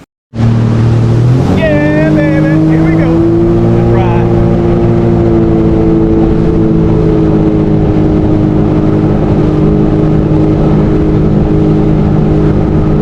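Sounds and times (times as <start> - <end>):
jet ski engine droning: 0.0 - 13.0.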